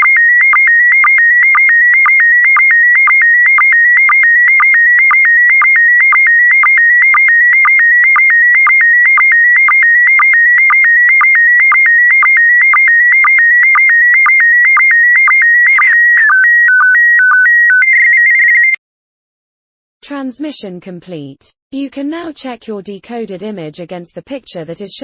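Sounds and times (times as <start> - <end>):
noisy signal burst: 0.0 - 16.3
low sync beep: 0.0 - 18.8
warbling sstv signal tones: 0.0 - 18.8.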